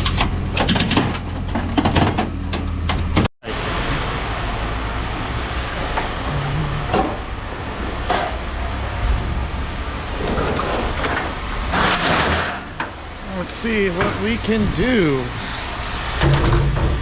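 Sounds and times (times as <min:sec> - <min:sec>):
heavy machinery running: 0:00.0 - 0:17.0.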